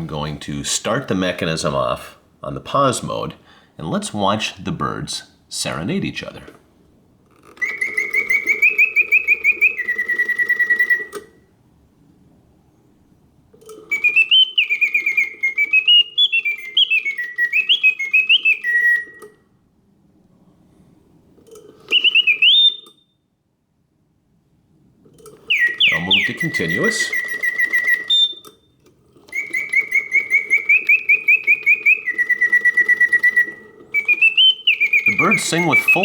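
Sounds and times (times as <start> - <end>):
clockwork whir: 7.5 - 11.4, 25.2 - 28.5, 29.2 - 36.0
mechanical bird whistle trilling: 7.5 - 11.5, 13.8 - 19.3, 21.8 - 23.1, 25.3 - 28.6, 29.3 - 36.0.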